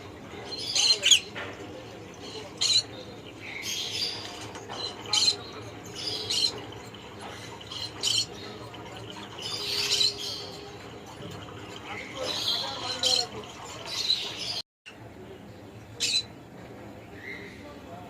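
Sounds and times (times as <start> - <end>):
parrot chirps and squawks: 2.5 - 2.9, 7.2 - 8.4, 9.2 - 10.6, 16.0 - 16.3.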